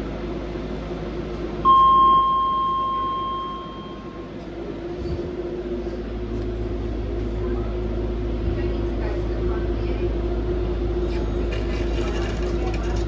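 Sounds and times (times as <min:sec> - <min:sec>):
train hum: 0:00.0 - 0:13.0
electronic chime: 0:01.7 - 0:04.2.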